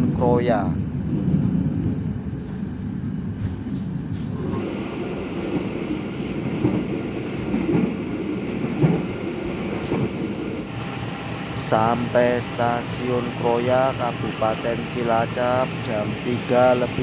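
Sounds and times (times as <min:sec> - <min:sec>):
train carriage rumbling on rails: 0:00.0 - 0:17.0
steady hiss: 0:10.7 - 0:17.0.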